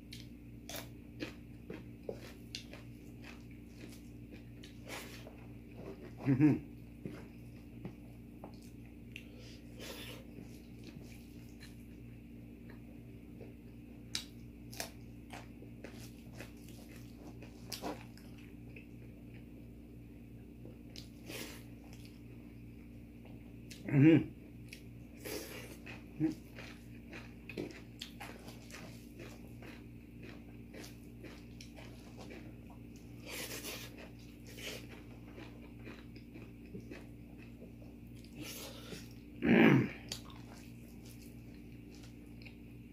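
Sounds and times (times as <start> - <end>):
person chewing food: 0.0 - 19.7, 20.3 - 42.9
steady low hum: 0.0 - 42.9.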